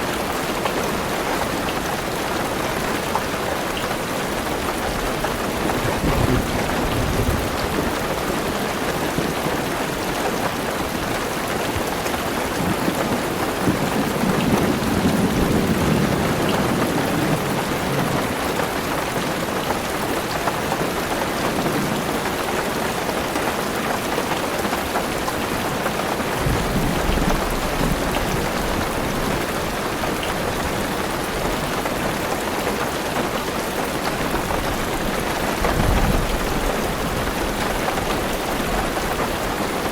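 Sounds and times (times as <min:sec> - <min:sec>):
rain on car roof: 0:00.0 - 0:39.9
thunder rolling: 0:05.6 - 0:08.1.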